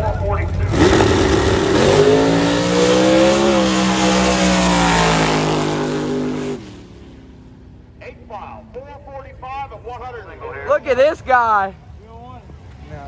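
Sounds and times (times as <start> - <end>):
drag racing engine at full throttle: 0.0 - 8.0.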